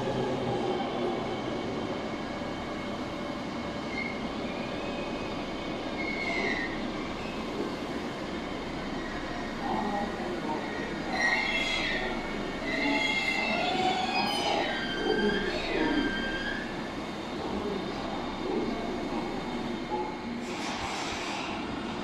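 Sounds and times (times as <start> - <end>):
high-pitched wheel squeals: 6.0 - 6.8, 11.1 - 16.8.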